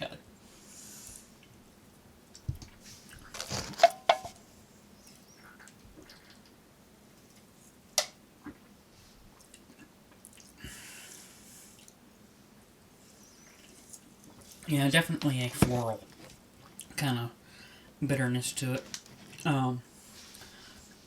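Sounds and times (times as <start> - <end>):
soft hiss: 0.0 - 21.0
rustling: 2.6 - 4.5.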